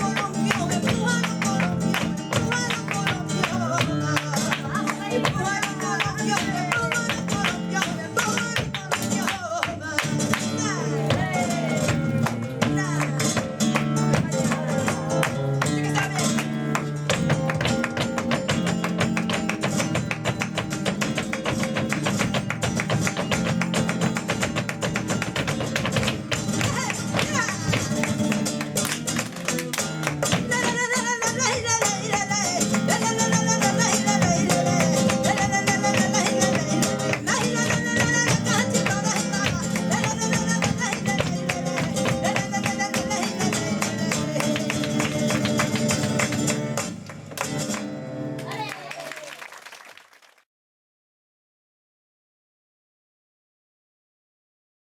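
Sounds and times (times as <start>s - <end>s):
person singing: 0.0s - 16.5s, 30.3s - 46.4s
flamenco guitar playing: 0.0s - 49.2s.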